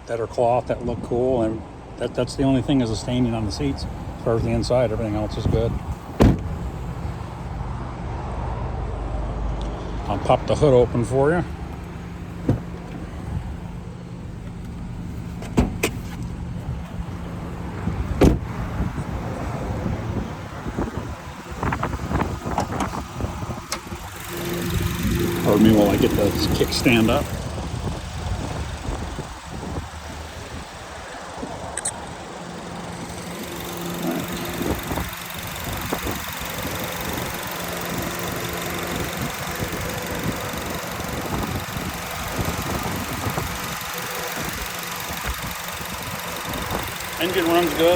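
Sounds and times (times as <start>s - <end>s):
car engine idling: 1.1s - 8.1s, 9.5s - 47.9s
hood latch clicks and knocks: 15.4s - 16.3s.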